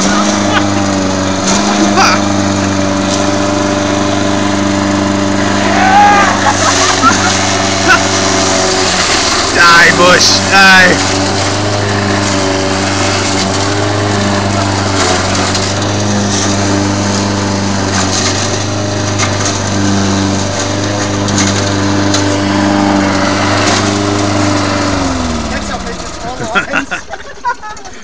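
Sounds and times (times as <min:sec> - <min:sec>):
lawn mower engine running: 0:00.0 - 0:28.0
branches cracking and snapping: 0:01.4 - 0:01.9, 0:17.9 - 0:19.9, 0:20.5 - 0:22.4, 0:23.5 - 0:24.2.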